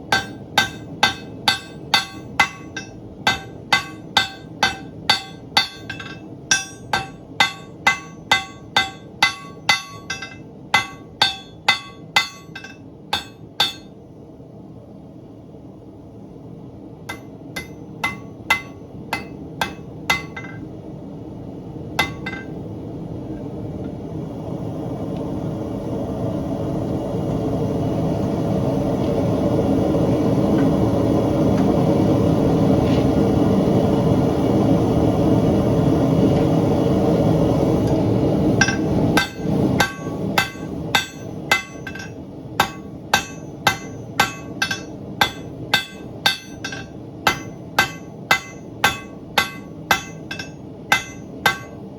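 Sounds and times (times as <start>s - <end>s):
hammer ringing on anvil: 0.1s - 13.9s, 17.1s - 20.7s, 22.0s - 22.6s, 38.6s - 51.9s.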